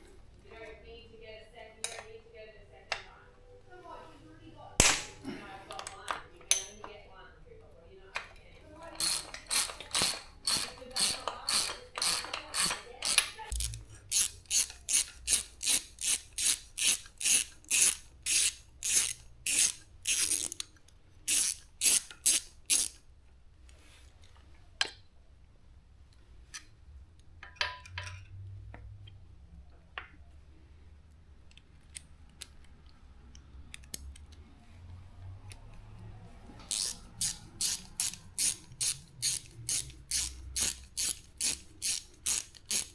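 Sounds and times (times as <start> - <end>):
ratchet wrench clicking: 8.9 - 23.0, 36.6 - 42.9.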